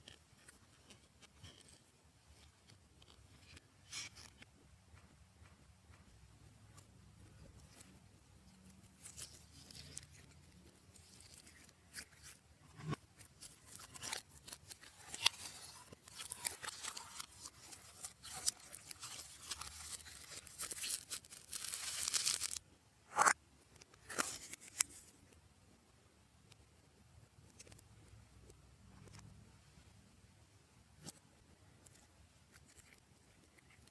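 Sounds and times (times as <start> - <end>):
slime crackling and popping: 12.8 - 23.4.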